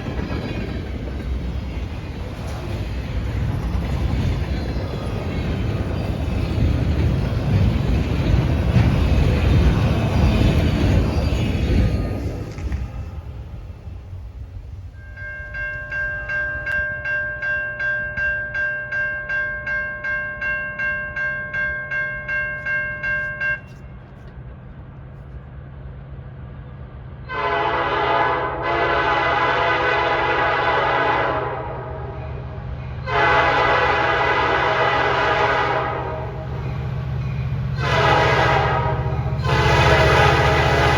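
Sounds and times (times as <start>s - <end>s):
railroad crossing bell ringing: 14.9s - 24.2s
train horn blasts: 27.2s - 32.2s, 33.0s - 36.6s, 37.8s - 40.9s.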